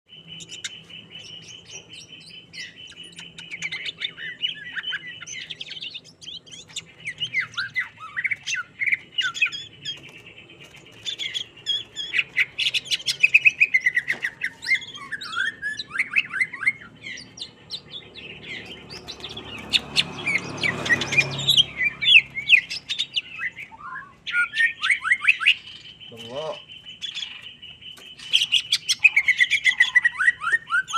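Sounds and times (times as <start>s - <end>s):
bird singing chirps and trills: 0.1s - 30.9s.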